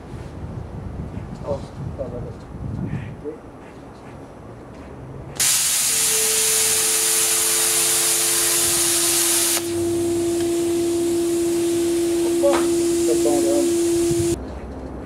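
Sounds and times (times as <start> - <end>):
plasma cutter hissing: 5.4 - 14.4
faint steady tone: 5.8 - 14.4.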